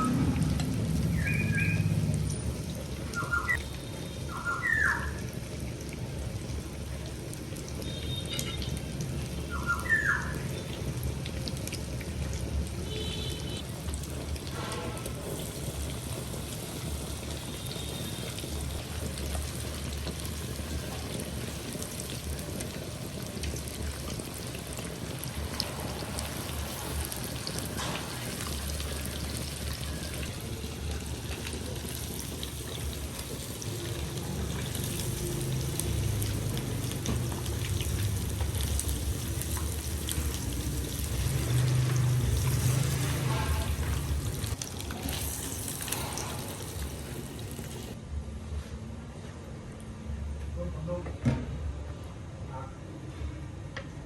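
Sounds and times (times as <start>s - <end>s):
fish sizzling in hot oil: 0.0s - 48.0s.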